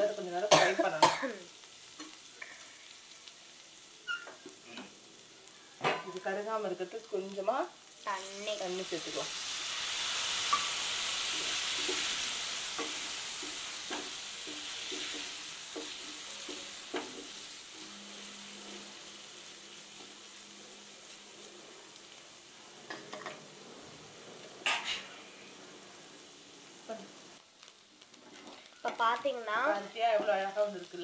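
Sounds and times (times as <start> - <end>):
potatoes sizzling in hot oil: 0.0 - 31.0
spatula knocking and scraping pan: 11.3 - 17.4.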